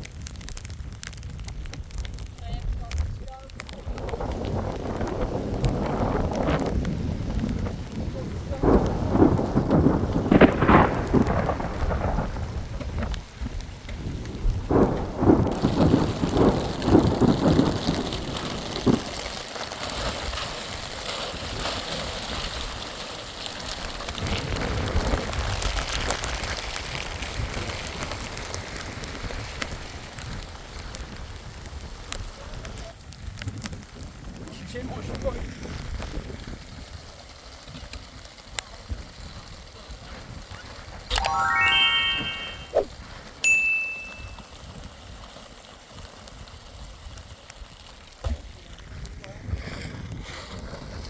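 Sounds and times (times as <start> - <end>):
rain falling: 0.0 - 49.2
thunder rumbling: 3.9 - 19.0.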